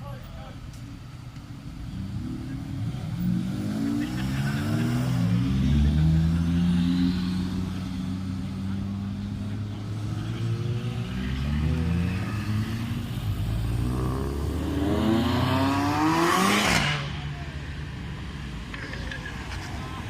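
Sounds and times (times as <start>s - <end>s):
car engine revving: 1.6s - 17.6s.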